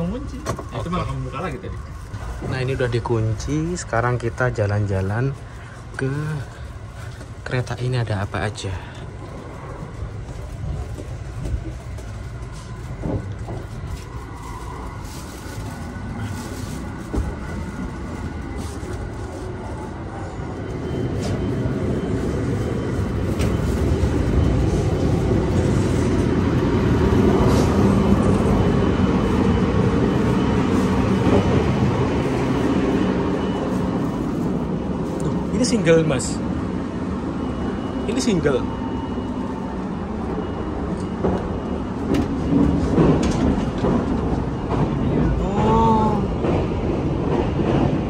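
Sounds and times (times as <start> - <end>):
train carriage low rumble: 0.0 - 48.0.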